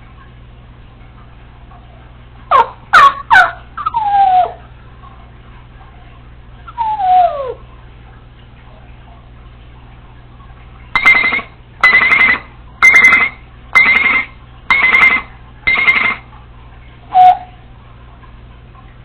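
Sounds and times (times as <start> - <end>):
parrot descending calls: 6.7 - 7.6.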